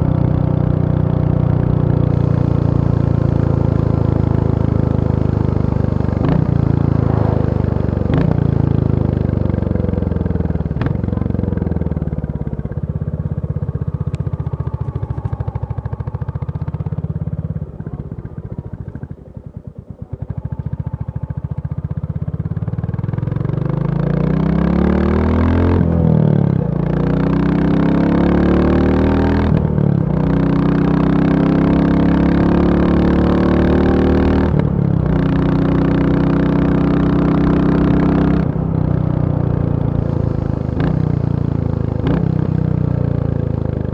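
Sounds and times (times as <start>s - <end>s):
motorcycle engine thumping: 6.1s - 20.8s.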